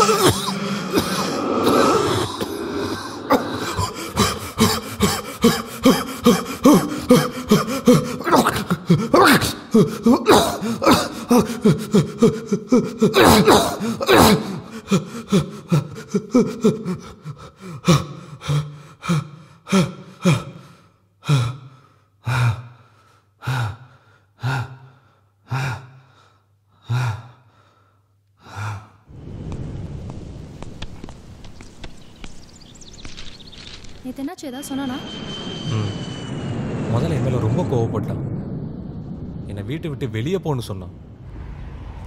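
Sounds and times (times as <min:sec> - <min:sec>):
man gasping breaths: 0:02.5 - 0:08.2, 0:08.8 - 0:29.1
steady ambient hiss: 0:29.1 - 0:34.6.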